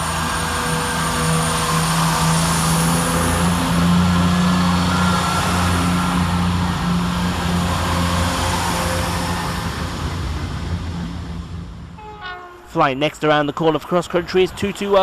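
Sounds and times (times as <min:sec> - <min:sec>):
diesel train engines droning: 0:00.0 - 0:15.0.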